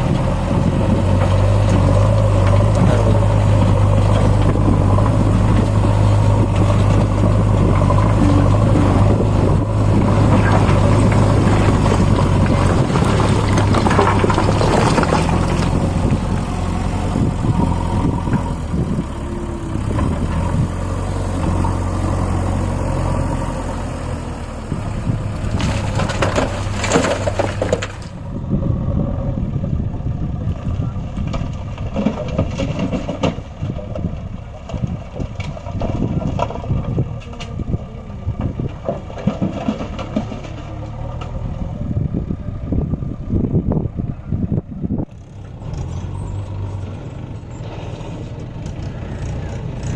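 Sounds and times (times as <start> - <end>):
tractor diesel engine running: 0.0 - 49.9
knocks and rattles: 1.0 - 19.1, 25.4 - 28.2, 31.2 - 37.7, 38.3 - 41.4.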